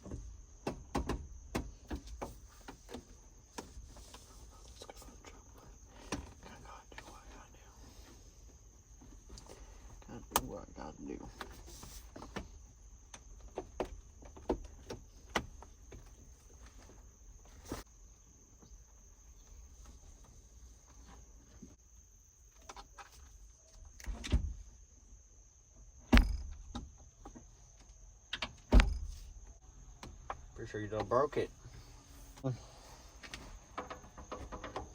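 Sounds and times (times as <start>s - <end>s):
loud thumps: 26.1s - 26.9s.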